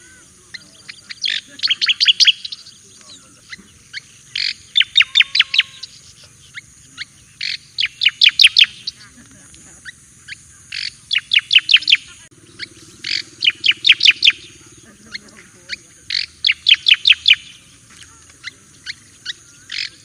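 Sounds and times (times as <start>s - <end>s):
bird singing sharp whistles: 0.6s - 6.7s, 7.4s - 9.0s, 10.8s - 14.6s, 15.7s - 17.7s.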